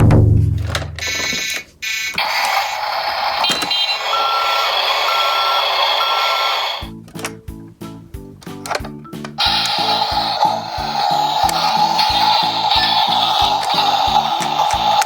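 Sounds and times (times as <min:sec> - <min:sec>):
bouncy tune with bass line: 0:06.8 - 0:14.2.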